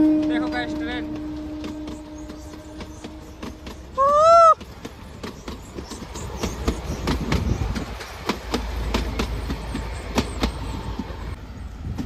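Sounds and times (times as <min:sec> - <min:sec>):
train coaches rumbling: 0:00.0 - 0:12.0
wheels clicking over rail joints: 0:00.0 - 0:12.0.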